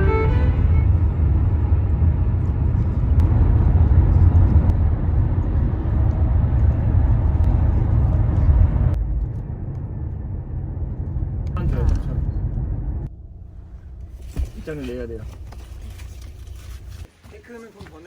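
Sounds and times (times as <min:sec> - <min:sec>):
car interior road rumble: 0:00.0 - 0:17.1.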